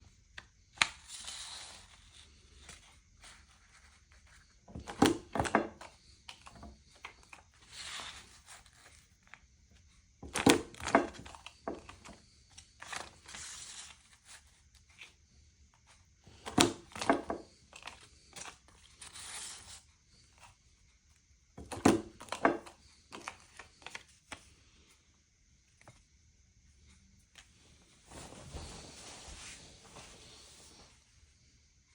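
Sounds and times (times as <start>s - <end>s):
paper cutter clunks and crunches: 4.7s - 5.9s, 10.2s - 12.1s, 16.3s - 17.5s, 21.6s - 23.4s
paper rustling: 10.2s - 15.2s, 16.3s - 20.5s.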